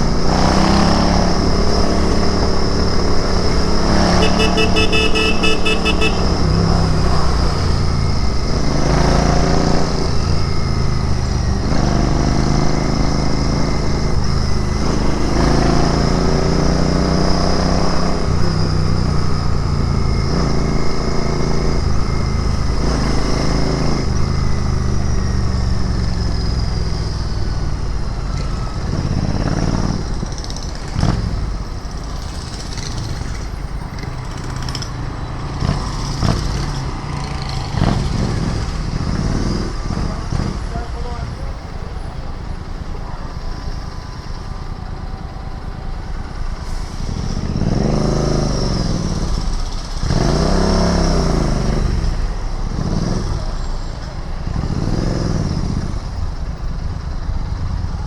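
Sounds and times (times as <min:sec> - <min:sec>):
motorcycle engine shifting gears: 0:00.0 - 0:41.0.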